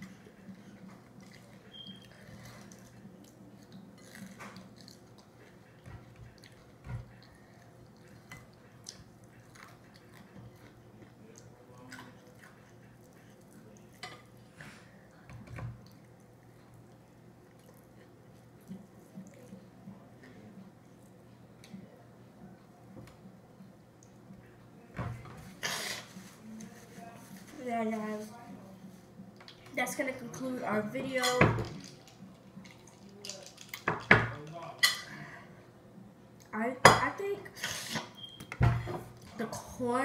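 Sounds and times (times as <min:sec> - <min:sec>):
wet chewing: 0:00.5 - 0:14.0.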